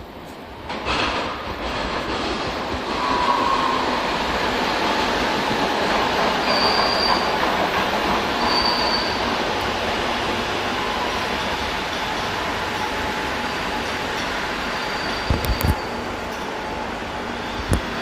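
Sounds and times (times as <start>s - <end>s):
train running on track: 0.0s - 18.0s
train wheel squeals: 2.8s - 4.2s, 6.1s - 9.4s, 10.7s - 16.6s, 17.3s - 17.7s.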